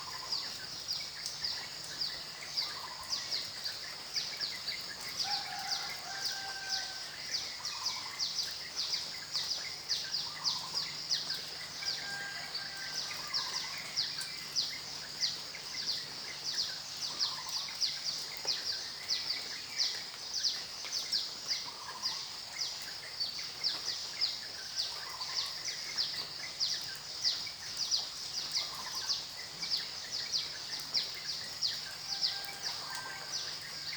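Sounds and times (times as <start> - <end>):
faint steady hiss: 0.0 - 33.9.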